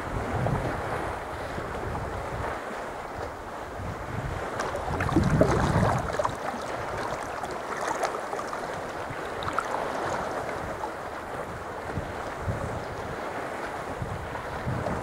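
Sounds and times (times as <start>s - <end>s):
water lapping around kayak: 0.0s - 15.0s
wind on microphone: 0.0s - 15.0s
water drips and slaps: 4.4s - 10.9s.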